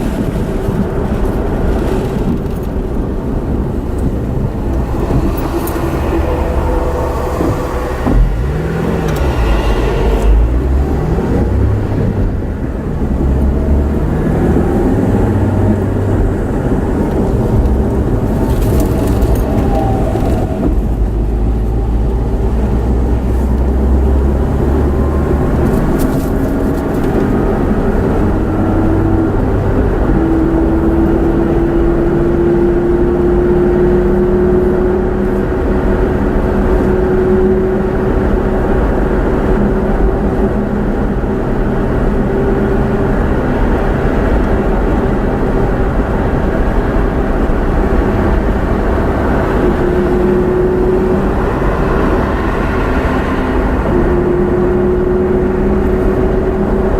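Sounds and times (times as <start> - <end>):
vehicle engine rumbling: 0.0 - 56.9.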